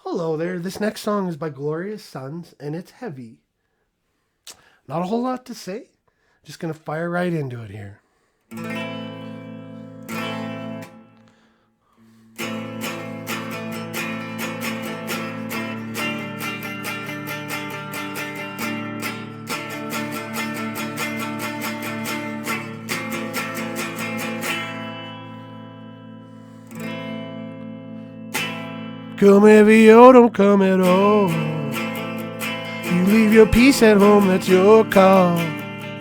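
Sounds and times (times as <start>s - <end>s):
strummed guitar: 8.5s - 36.0s.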